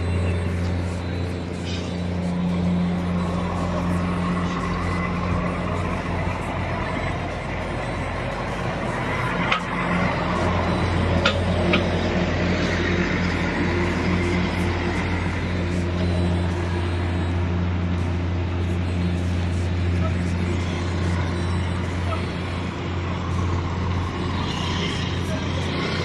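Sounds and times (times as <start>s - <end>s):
engine humming: 0.0s - 26.0s.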